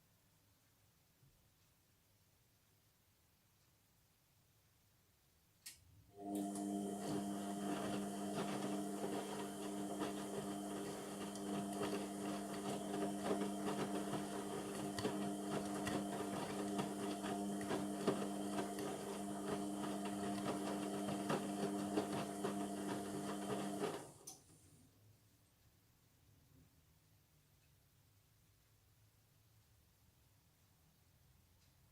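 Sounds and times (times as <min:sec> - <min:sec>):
washing machine humming: 0:06.1 - 0:24.3.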